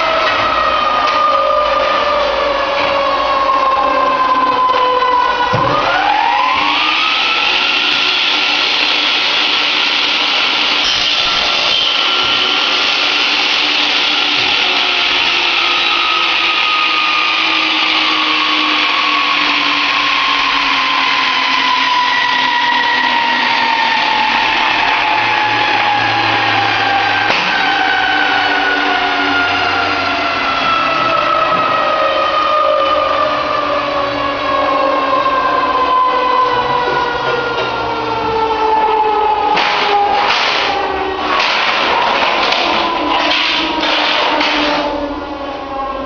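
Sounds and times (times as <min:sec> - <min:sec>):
electric power tool motor: 0:06.5 - 0:16.7.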